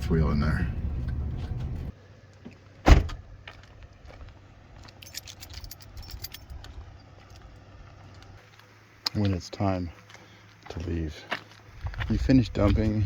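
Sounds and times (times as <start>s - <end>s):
low rumble: 0.0s - 1.9s
loud thump: 2.9s - 3.2s
light metallic clicks and jingles: 4.8s - 8.4s.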